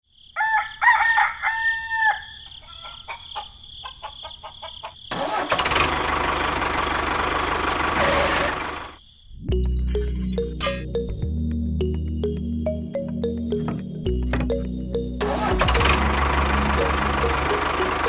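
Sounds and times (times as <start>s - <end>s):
rooster crowing: 0.4s - 5.1s
engine running: 5.2s - 9.0s, 14.1s - 18.0s.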